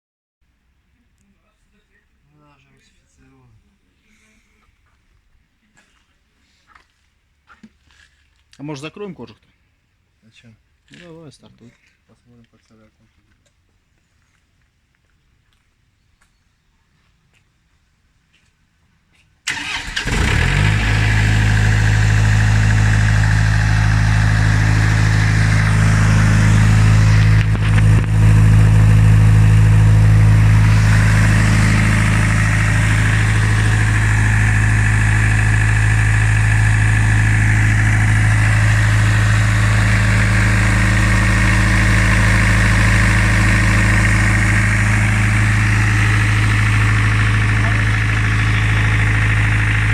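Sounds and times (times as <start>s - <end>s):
diesel generator engine starting and running: 19.5s - 49.9s.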